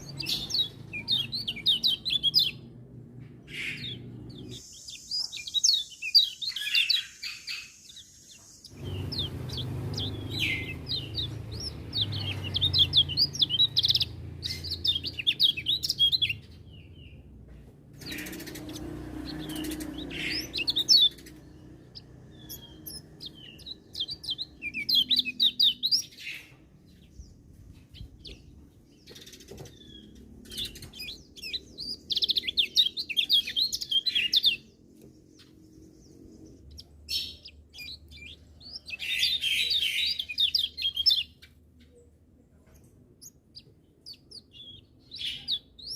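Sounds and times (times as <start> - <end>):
bird twittering song: 0.0 - 45.9.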